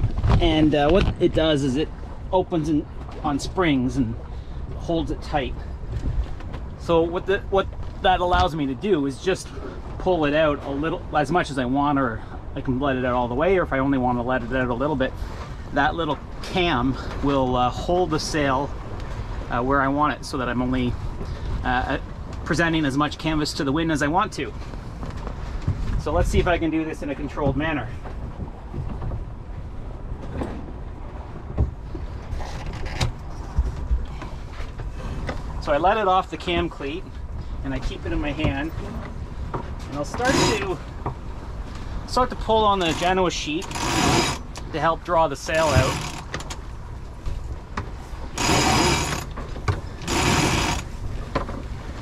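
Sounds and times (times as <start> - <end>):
wind rumbling on microphone: 0.0 - 52.0
gear knocking: 48.4 - 51.5.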